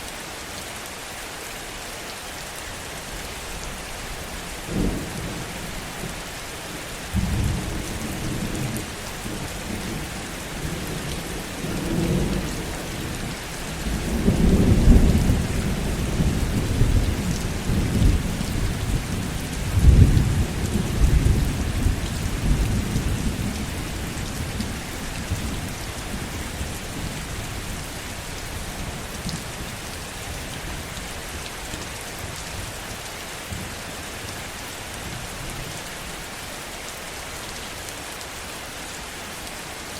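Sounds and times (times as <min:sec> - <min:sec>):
heavy rain: 0:00.0 - 0:39.9
thunder rumbling: 0:07.1 - 0:27.8.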